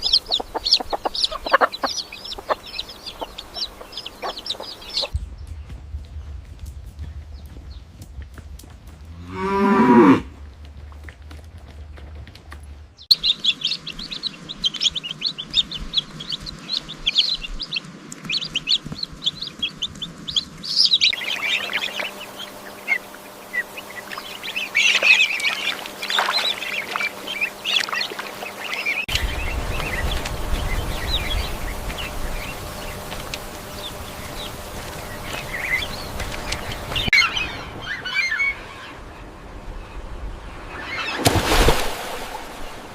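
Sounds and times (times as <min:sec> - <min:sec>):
low rumble: 0:00.0 - 0:13.1, 0:29.1 - 0:40.8.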